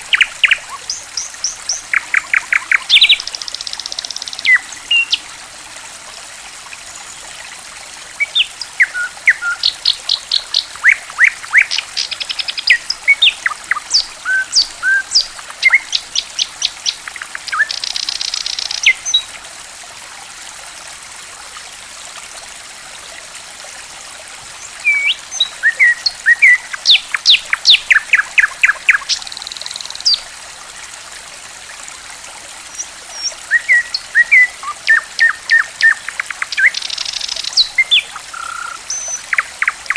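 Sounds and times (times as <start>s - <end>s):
songbird singing: 0.0s - 5.3s, 8.2s - 19.3s, 24.6s - 30.2s, 32.7s - 39.9s
running water trickling: 0.0s - 39.9s.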